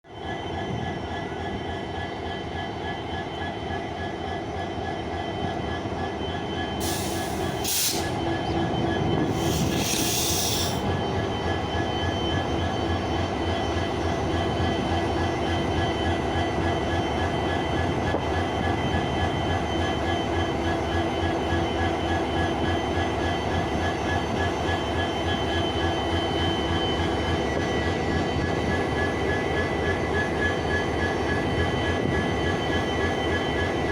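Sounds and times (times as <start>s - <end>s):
diesel locomotive engine running: 0.1s - 33.9s
hissing air blasts: 6.8s - 8.2s, 9.3s - 10.8s.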